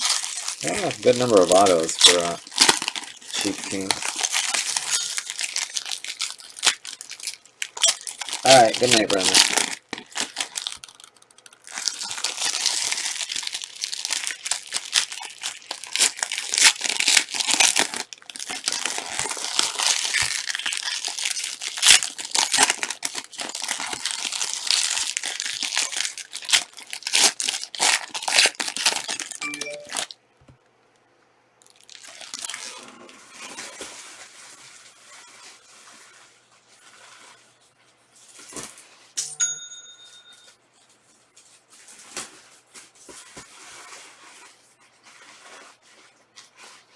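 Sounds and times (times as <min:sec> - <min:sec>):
card wrappers torn and crinkled: 0:00.0 - 0:30.1, 0:31.6 - 0:33.7
short ding: 0:39.2 - 0:40.5.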